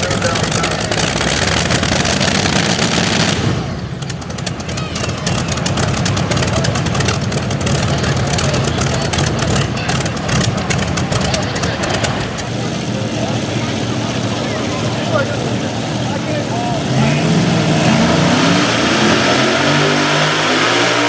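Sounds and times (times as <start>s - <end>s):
pulling tractor engines crackling: 0.0s - 12.9s.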